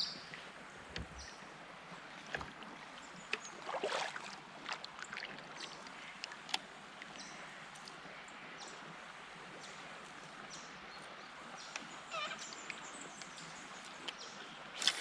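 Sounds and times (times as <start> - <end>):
river water rushing: 1.4 - 5.6.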